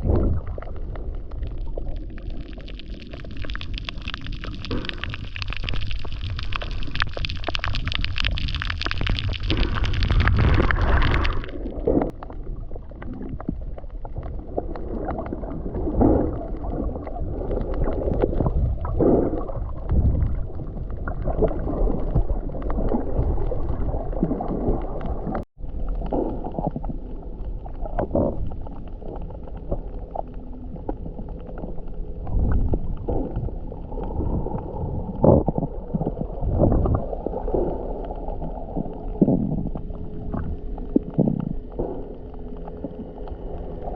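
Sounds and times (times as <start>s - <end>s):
muffled underwater wash: 0.0s - 43.9s
water swishes and gurgles: 0.0s - 43.9s.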